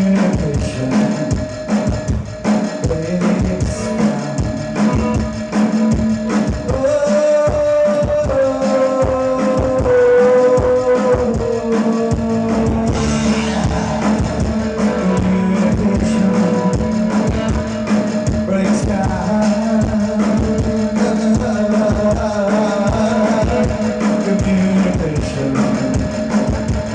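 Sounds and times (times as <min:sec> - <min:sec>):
rock band playing live: 0:00.0 - 0:26.9.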